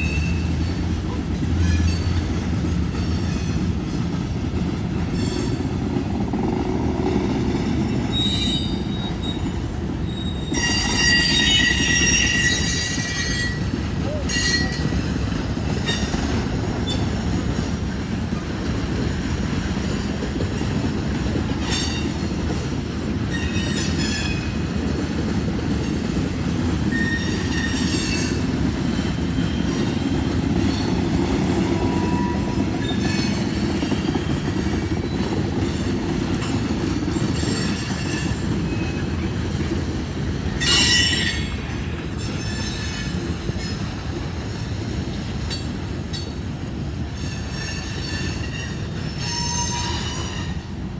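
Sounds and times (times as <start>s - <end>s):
train wheels squealing: 0.0s - 1.0s, 1.6s - 2.3s, 7.8s - 15.2s, 23.2s - 24.6s, 26.8s - 39.8s, 40.6s - 50.8s
train rumbling on rails: 0.0s - 50.9s.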